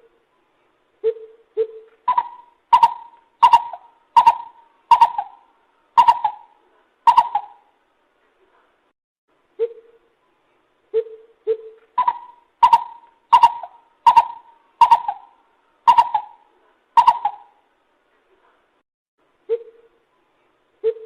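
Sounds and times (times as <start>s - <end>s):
bird low hoots: 1.0s - 7.7s, 10.9s - 17.6s
bird hollow notes: 1.1s - 5.4s, 6.0s - 6.5s, 7.1s - 7.6s, 11.0s - 15.3s, 17.0s - 17.5s.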